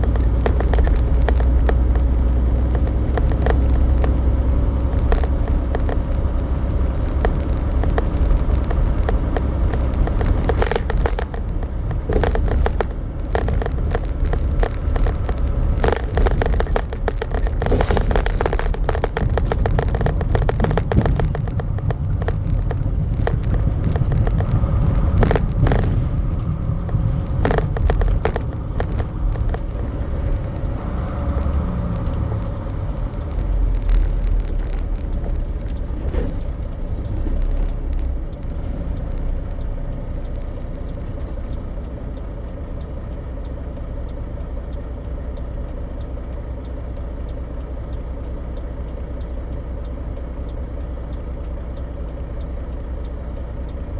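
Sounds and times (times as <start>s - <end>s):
rattles and knocks in cab: 0.0s - 42.0s
truck engine and road rumble: 0.0s - 53.9s.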